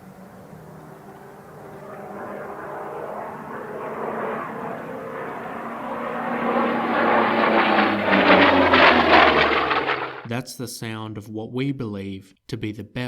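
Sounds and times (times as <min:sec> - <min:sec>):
piston aircraft engine droning: 0:00.0 - 0:10.3.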